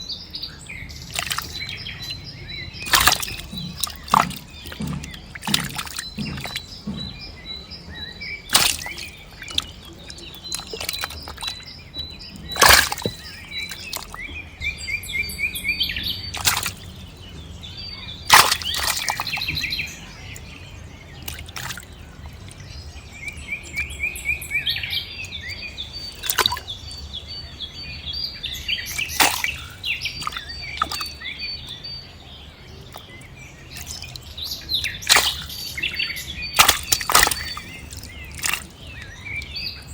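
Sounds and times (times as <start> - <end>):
birds chirping and trilling: 0.0 - 39.9
low steady hum: 0.0 - 39.9
sharp knocks or splashes: 1.0 - 14.8, 16.0 - 23.4, 25.3 - 26.8, 28.8 - 31.9, 32.8 - 39.7.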